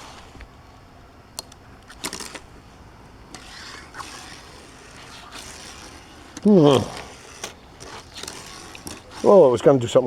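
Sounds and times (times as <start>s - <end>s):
toy car rolling scrape: 1.5s - 2.6s, 3.3s - 9.6s
toy car clicking on track: 3.3s - 9.5s.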